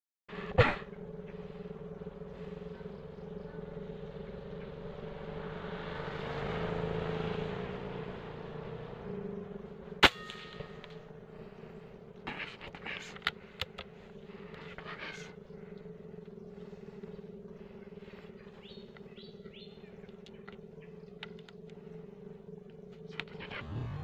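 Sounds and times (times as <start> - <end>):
low steady hum: 0.3 - 24.0
small bird chirping: 0.8 - 5.6, 8.5 - 24.0
sharp clicks: 12.7 - 14.0, 20.0 - 21.8, 22.7 - 23.8.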